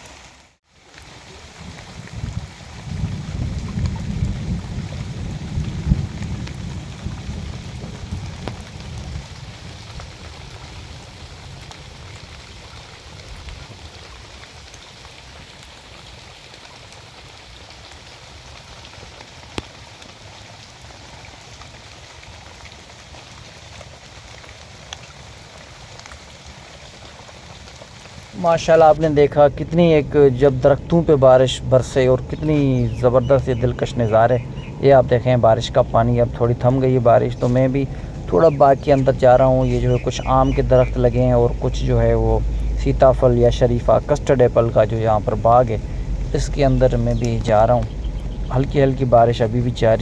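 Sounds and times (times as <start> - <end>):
heavy rain on trees: 0.0 - 50.0
low rumble: 28.3 - 50.0.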